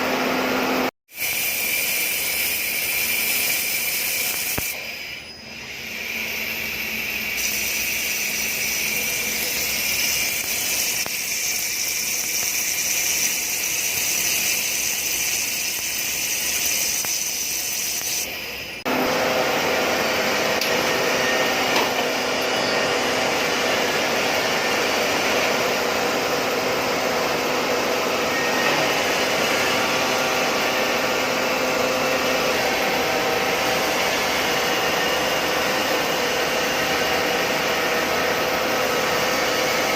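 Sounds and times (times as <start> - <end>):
metalworking machinery hiss and whine: 0.0 - 39.9.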